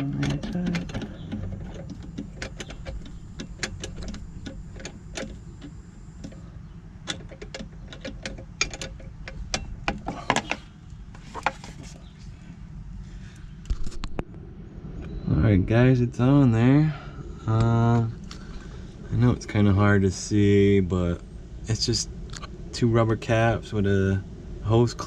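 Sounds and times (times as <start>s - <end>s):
screw clicking as it turns: 0.0s - 6.4s, 7.1s - 10.6s
steady low rumble: 0.0s - 25.0s.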